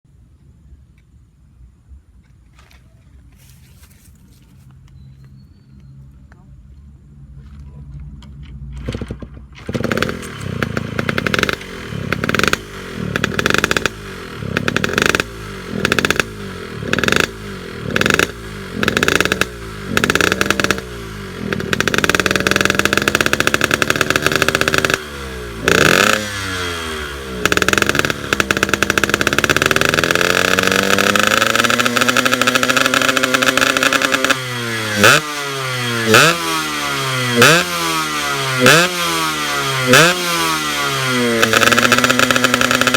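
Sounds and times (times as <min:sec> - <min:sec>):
two-stroke engine revving: 0:08.9 - 0:42.9.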